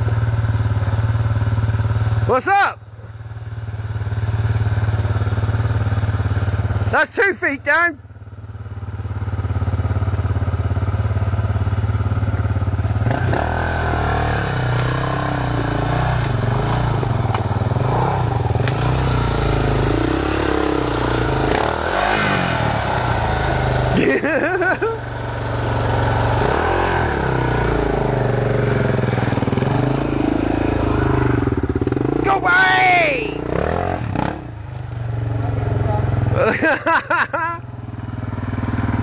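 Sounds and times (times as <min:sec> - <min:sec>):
dirt bike engine revving: 0:03.4 - 0:08.0, 0:09.1 - 0:39.0.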